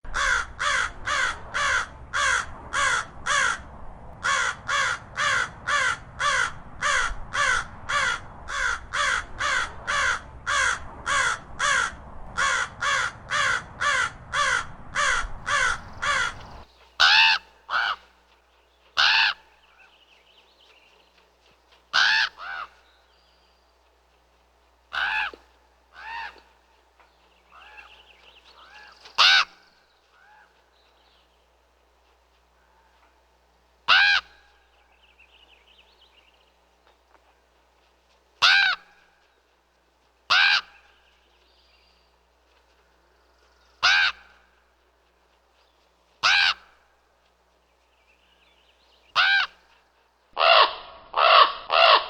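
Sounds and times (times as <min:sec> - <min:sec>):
raven calling: 0:00.1 - 0:18.2, 0:19.0 - 0:20.2, 0:21.9 - 0:23.3, 0:24.9 - 0:31.3, 0:33.9 - 0:35.7, 0:38.4 - 0:39.4, 0:40.3 - 0:41.7, 0:43.4 - 0:44.7, 0:46.2 - 0:47.0, 0:49.1 - 0:49.8, 0:50.4 - 0:52.0.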